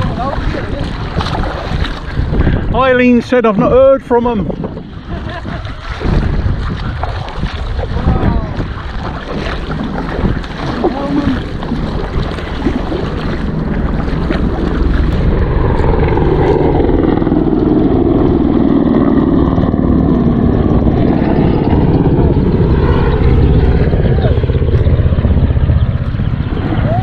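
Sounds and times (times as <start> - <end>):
water splashing: 0.0 - 3.2, 4.2 - 16.8
wind buffeting: 0.0 - 27.0
engine drone: 8.3 - 27.0.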